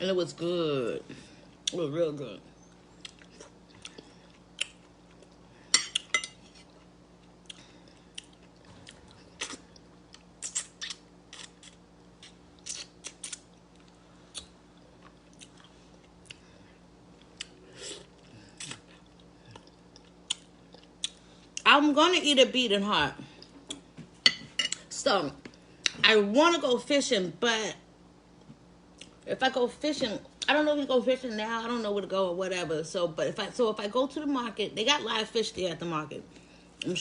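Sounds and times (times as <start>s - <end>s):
person chewing and biting: 3.0s - 16.5s, 17.2s - 21.2s
wet mouth clicks and smacks: 10.4s - 11.0s.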